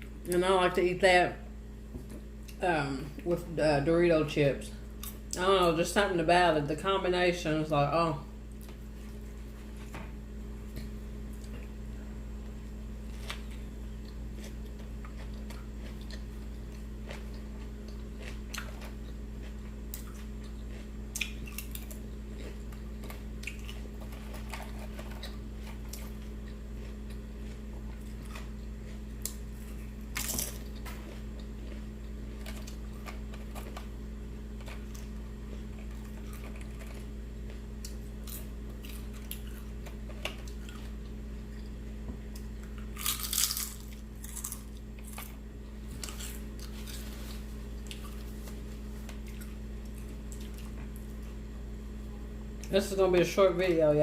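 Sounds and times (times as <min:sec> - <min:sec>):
low hum: 0:00.0 - 0:54.0
person chewing and lip smacks: 0:13.1 - 0:33.9, 0:49.0 - 0:51.4.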